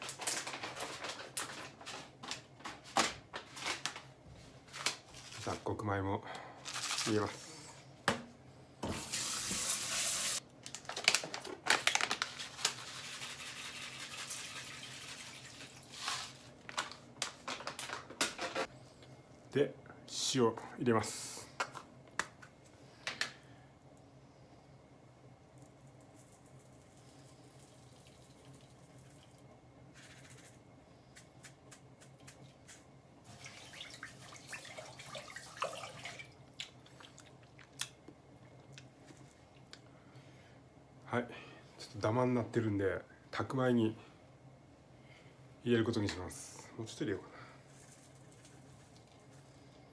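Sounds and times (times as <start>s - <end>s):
packet rustling: 0.0s - 4.1s, 6.6s - 7.3s, 10.6s - 13.3s, 15.8s - 18.6s
water trickling and splashing: 33.3s - 37.4s.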